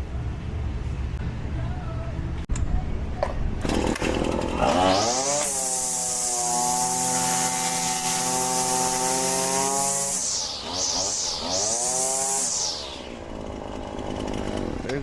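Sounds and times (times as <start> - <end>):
string trimmer engine revving: 3.6 - 15.0.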